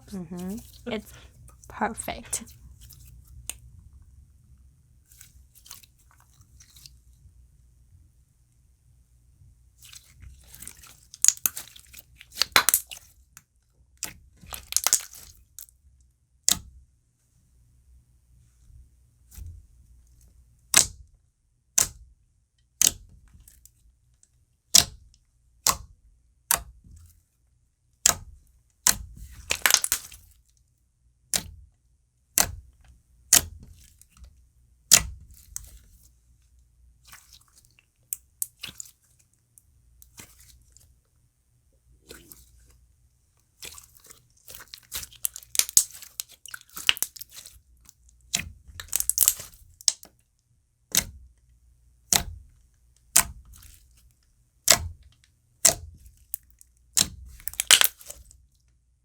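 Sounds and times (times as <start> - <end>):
slime being pressed: 11.2 - 13.0, 14.5 - 15.3, 21.8 - 22.0, 24.7 - 25.0, 28.0 - 30.2, 32.4 - 32.6, 33.3 - 33.6, 34.9 - 35.8, 44.5 - 47.4, 48.3 - 50.0, 50.9 - 51.2, 52.1 - 52.4, 53.1 - 53.8, 54.7 - 55.0, 55.6 - 56.0, 57.0 - 58.3
slime bubble pops: 12.4 - 12.9, 28.9 - 30.2, 57.4 - 58.1.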